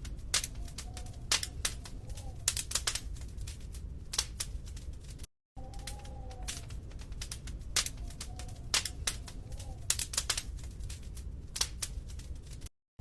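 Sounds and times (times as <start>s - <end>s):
fire crackling and popping: 0.0s - 12.7s
faint whistling tone: 7.9s - 9.9s.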